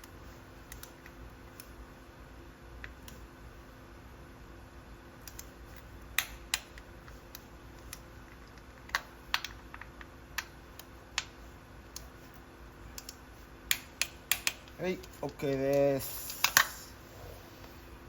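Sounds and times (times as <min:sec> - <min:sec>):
hand tools clicking and tapping: 0:13.0 - 0:16.8.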